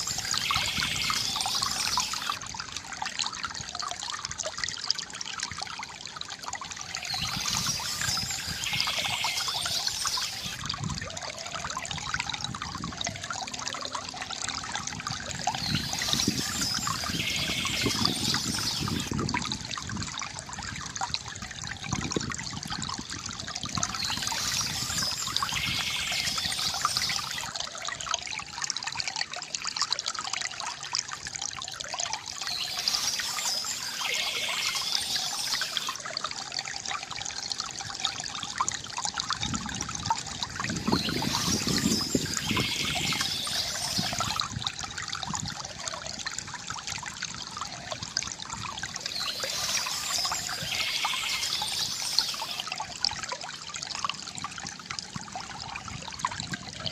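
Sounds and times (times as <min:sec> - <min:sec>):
water trickling from fountain: 0:00.0 - 0:56.9.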